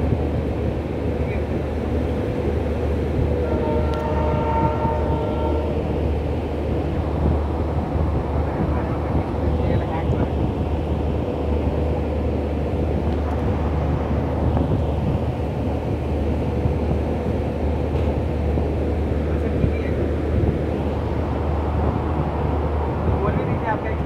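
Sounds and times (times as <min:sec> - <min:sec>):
train rumble from inside coach: 0:00.0 - 0:24.0.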